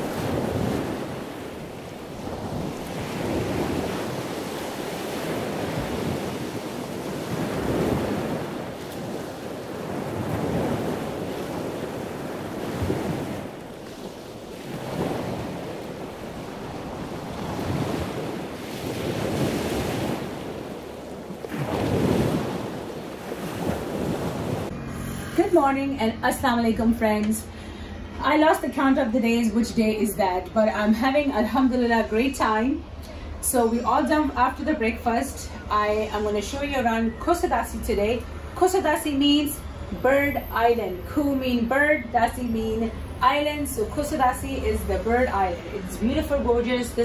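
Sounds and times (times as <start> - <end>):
sea waves washing in: 0.0 - 26.6
wind: 0.0 - 47.0.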